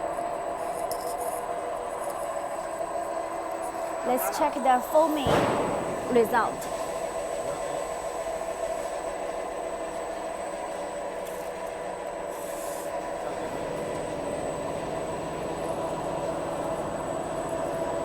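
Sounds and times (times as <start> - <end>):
factory machinery running: 4.0 - 10.8, 13.0 - 18.0.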